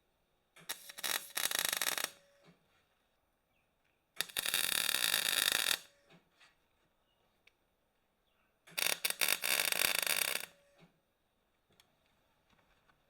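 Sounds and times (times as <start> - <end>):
welding crackling hiss: 0.7 - 2.2, 8.8 - 10.5.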